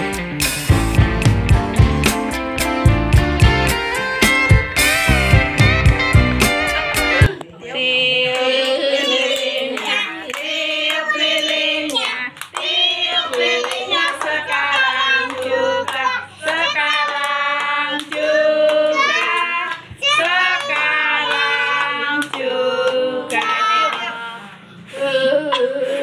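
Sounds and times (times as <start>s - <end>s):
guitar music: 0.0s - 7.3s
children singing: 8.1s - 24.3s
children clapping: 8.4s - 24.1s.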